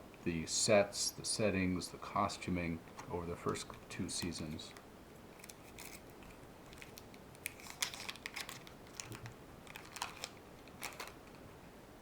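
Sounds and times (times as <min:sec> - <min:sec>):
trading cards shuffled by hand: 0:05.4 - 0:11.4.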